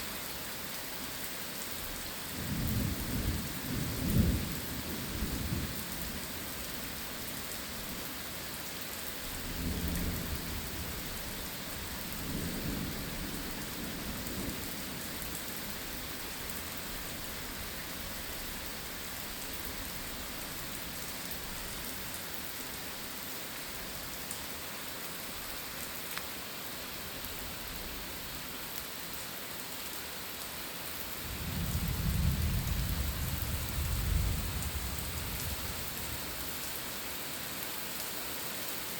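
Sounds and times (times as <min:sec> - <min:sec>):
steady rain falling: 0:00.0 - 0:38.9
thunder rumbling: 0:31.3 - 0:36.5.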